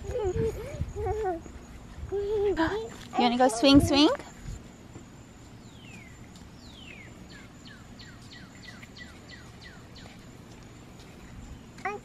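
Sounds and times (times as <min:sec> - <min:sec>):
high insect trill: 0:00.0 - 0:12.0
songbird whistling: 0:05.7 - 0:10.1.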